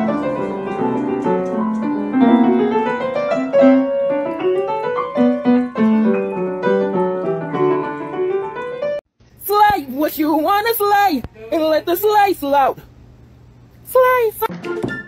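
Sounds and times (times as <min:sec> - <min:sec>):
piano melody with runs: 0:00.0 - 0:09.0.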